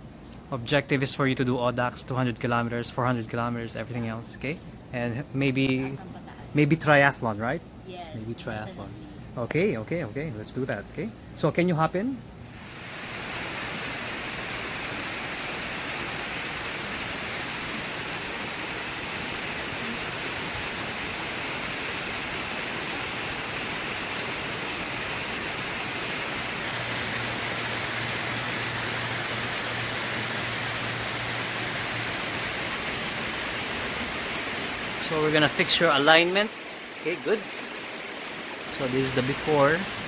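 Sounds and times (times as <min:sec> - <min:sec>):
steady rushing hiss: 0:00.0 - 0:40.0.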